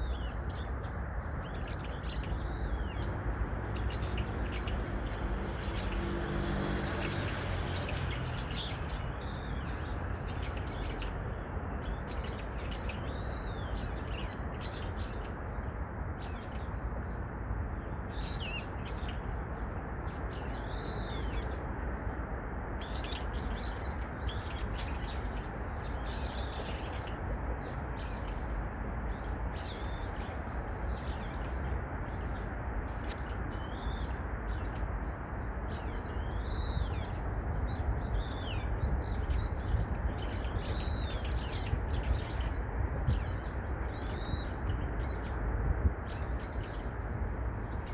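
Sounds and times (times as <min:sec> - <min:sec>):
birds chirping: 0:29.2 - 0:47.9.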